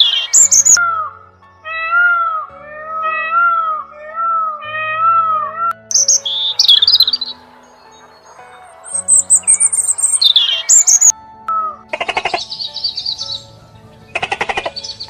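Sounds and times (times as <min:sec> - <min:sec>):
sparrows chirping: 0:00.0 - 0:00.8, 0:05.9 - 0:11.1, 0:12.0 - 0:15.0
peacock calling: 0:00.0 - 0:13.5.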